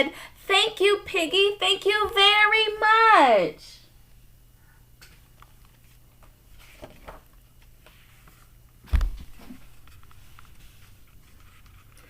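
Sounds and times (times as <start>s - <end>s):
paper rustling: 5.6s - 12.0s.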